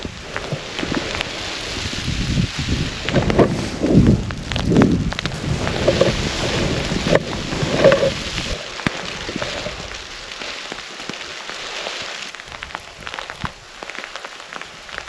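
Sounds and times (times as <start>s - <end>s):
wind buffeting microphone: 0.0s - 10.2s
steady hiss: 0.0s - 15.0s.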